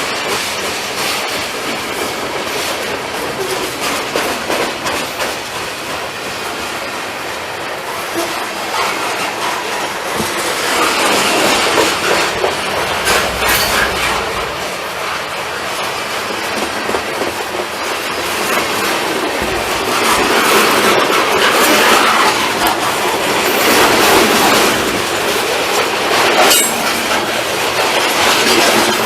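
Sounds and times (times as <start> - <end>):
freight train wheels clacking: 8.8 - 15.0.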